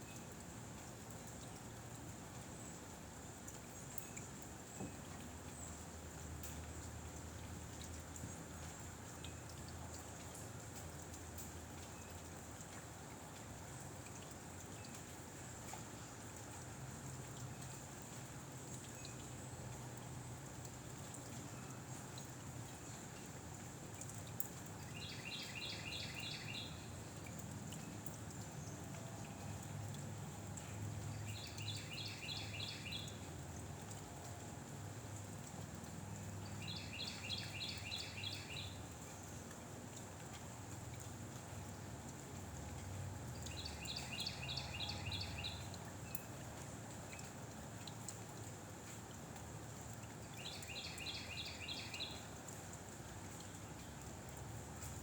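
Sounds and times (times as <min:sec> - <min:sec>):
songbird trilling: 0:43.6 - 0:45.6.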